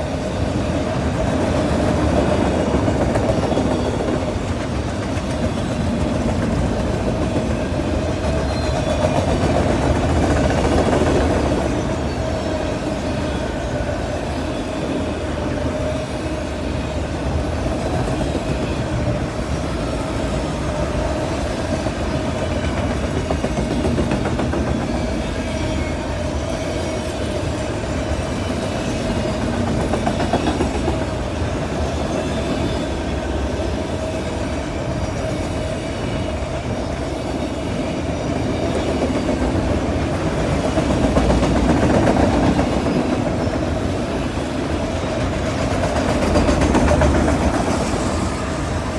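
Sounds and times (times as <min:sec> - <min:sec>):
freight train rumbling past: 0:00.0 - 0:48.9
wheels clacking over rail joints: 0:17.2 - 0:33.8, 0:34.6 - 0:48.9.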